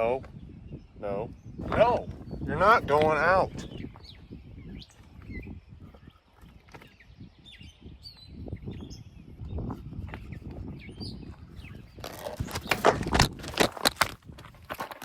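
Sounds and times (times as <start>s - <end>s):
rumbling and bumping from handling: 11.9s - 15.0s.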